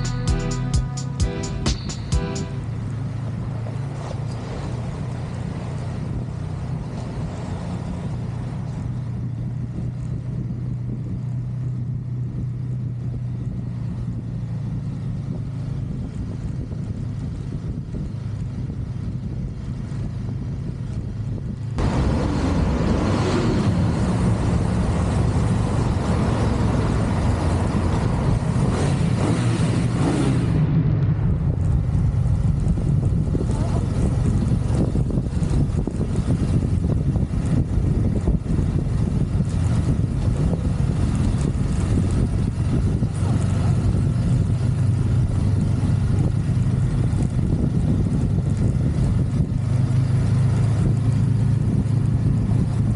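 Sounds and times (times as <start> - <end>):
motorcycle engine cruising: 0.0 - 52.9
road noise: 0.0 - 52.9
wind rushing: 21.4 - 43.2.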